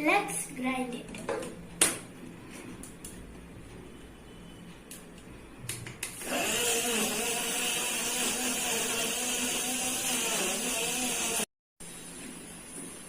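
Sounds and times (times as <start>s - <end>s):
blender motor grinding: 6.2s - 11.5s.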